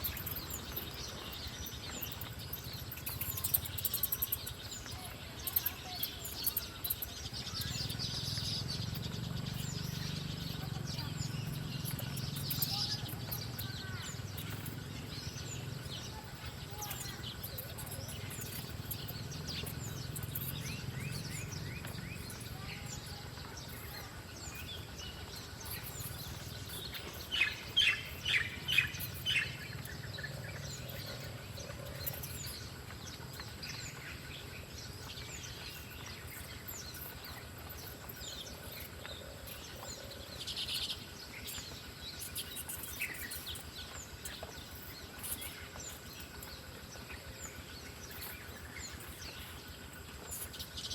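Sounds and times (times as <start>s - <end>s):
birds chirping: 0.0s - 50.9s.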